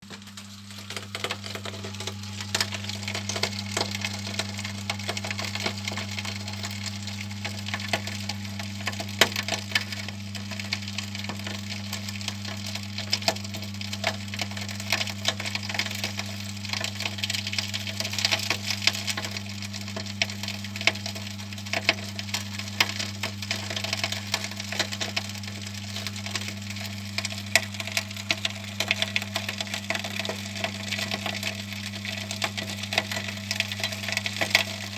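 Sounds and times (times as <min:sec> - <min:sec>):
electric motor hum: 0:00.0 - 0:09.2
coal crackling and clicking: 0:00.0 - 0:34.9.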